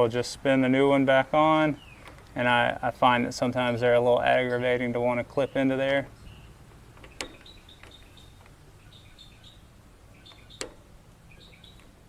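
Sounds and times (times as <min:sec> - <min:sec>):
faint bird chirps: 0:05.5 - 0:11.9.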